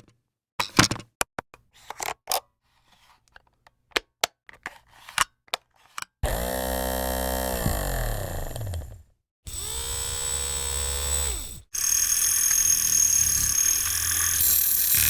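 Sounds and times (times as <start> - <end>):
small motor running: 6.2 - 15.0.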